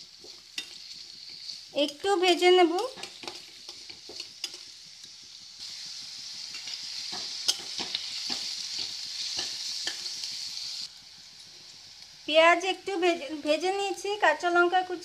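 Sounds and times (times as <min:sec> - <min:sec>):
spatula scraping and tapping pan: 0:00.0 - 0:02.1, 0:02.7 - 0:05.3, 0:06.5 - 0:10.3
onions sizzling in hot oil: 0:00.0 - 0:15.0.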